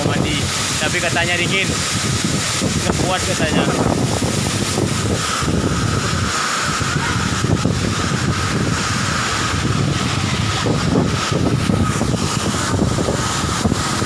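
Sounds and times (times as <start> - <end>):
waterfall rushing: 0.0 - 14.0
wind buffeting microphone: 0.0 - 14.0.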